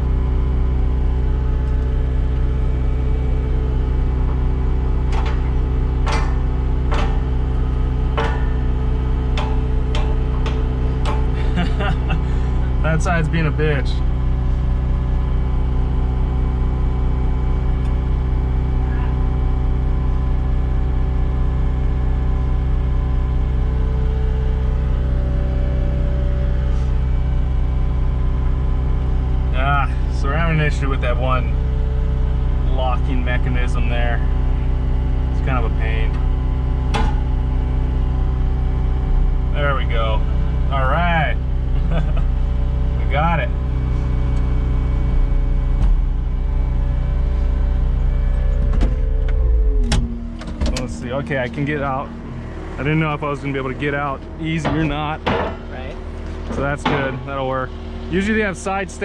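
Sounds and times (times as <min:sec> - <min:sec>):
diesel engine idling: 0:00.0 - 0:59.0
sharp metal knocks: 0:04.2 - 0:11.5, 0:36.9 - 0:37.4, 0:54.6 - 0:55.8, 0:56.5 - 0:57.4.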